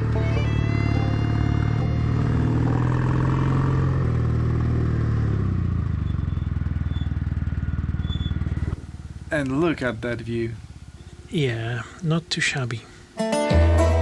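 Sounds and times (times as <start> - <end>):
motorcycle engine running: 0.0 - 11.4
road noise: 0.0 - 13.2.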